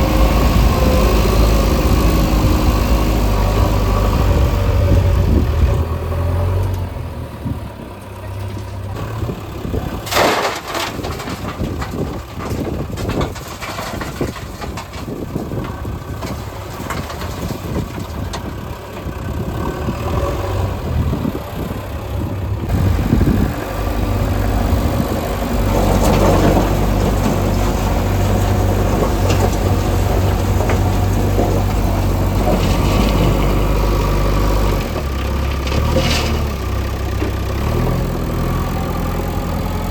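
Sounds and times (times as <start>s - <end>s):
diesel machinery engines running: 0.0s - 39.9s
machinery clatter: 8.1s - 20.2s, 21.0s - 39.9s.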